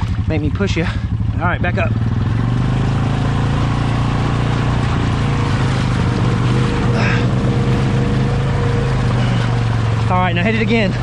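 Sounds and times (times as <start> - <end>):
atv engine running steadily: 0.0 - 11.0.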